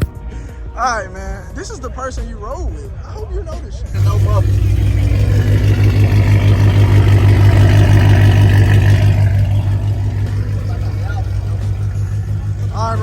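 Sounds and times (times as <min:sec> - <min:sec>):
car engine running: 0:04.0 - 0:13.0.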